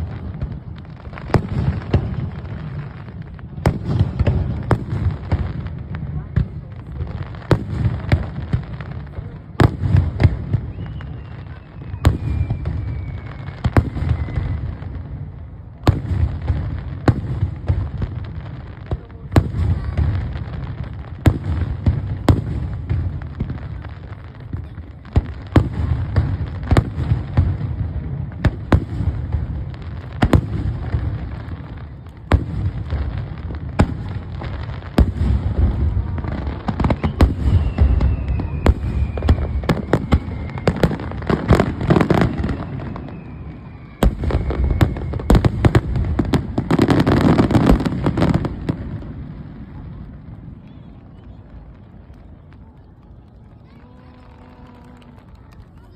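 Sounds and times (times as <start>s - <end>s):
fireworks bursting with sharp bangs: 0.0s - 55.9s
faint falling whistle: 10.5s - 14.8s, 36.8s - 41.2s, 42.4s - 45.5s.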